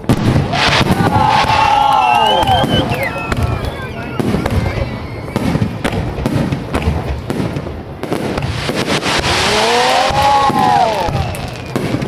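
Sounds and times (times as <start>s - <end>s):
hissing firework burst: 0.0s - 1.8s, 7.4s - 12.0s
firework bangs and crackles: 0.0s - 12.0s
firework whistles: 0.4s - 5.8s, 8.4s - 12.0s.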